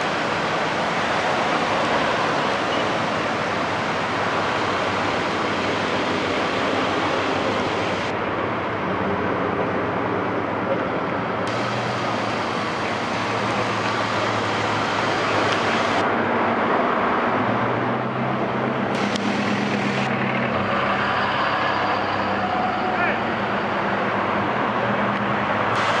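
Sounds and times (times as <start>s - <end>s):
low engine hum: 0.0s - 22.6s
highway traffic noise: 0.0s - 26.0s
bright rushing hiss: 25.8s - 26.0s.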